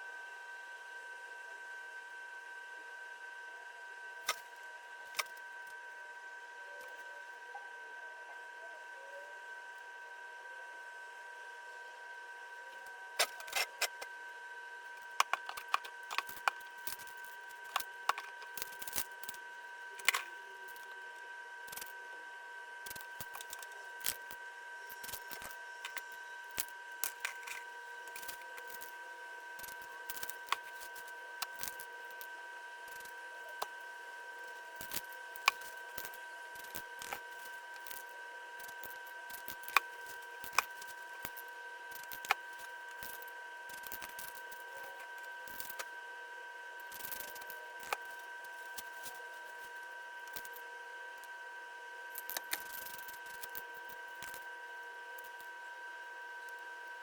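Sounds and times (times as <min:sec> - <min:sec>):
high two-tone hum: 0:14.8 - 0:57.0.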